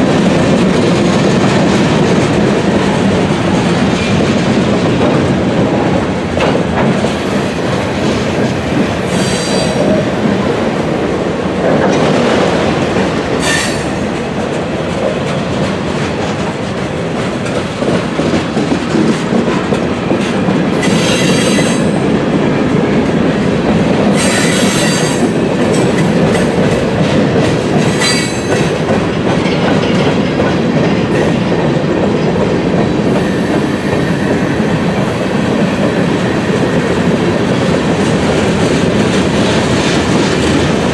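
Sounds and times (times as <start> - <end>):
freight train wheels clattering: 0.0 - 40.9
high-pitched wheel squeals: 20.8 - 22.0, 24.2 - 25.3, 27.9 - 28.5.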